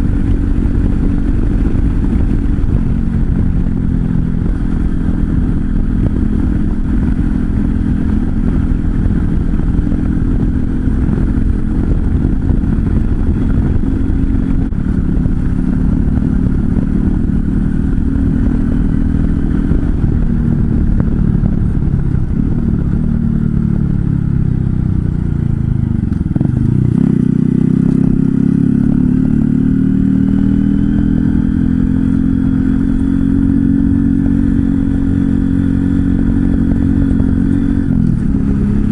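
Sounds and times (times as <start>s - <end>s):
motorcycle engine while riding: 0.0s - 38.9s
wind noise on microphone: 0.0s - 38.9s.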